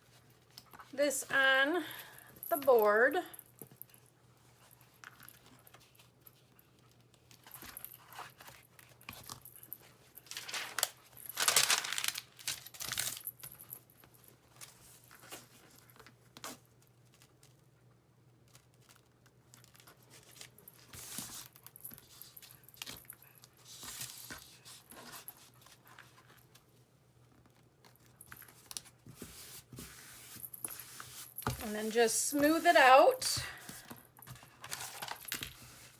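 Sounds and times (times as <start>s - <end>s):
paper and fabric rustling: 6.8s - 13.3s, 27.4s - 35.9s.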